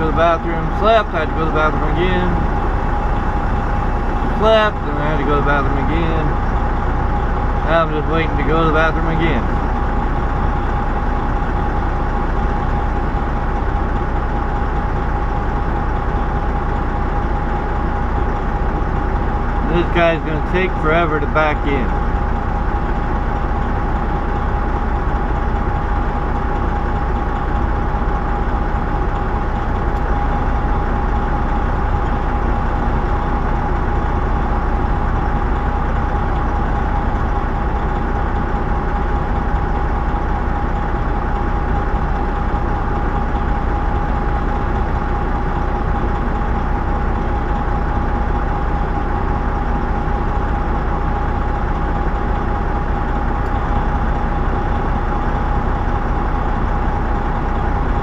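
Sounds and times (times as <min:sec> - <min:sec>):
steady hum: 0:00.0 - 0:16.0, 0:18.2 - 0:26.0
diesel truck engine idling: 0:00.0 - 0:58.0.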